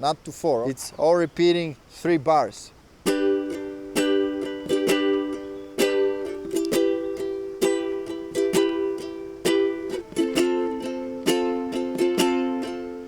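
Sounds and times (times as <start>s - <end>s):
ukulele strumming: 3.0s - 13.0s.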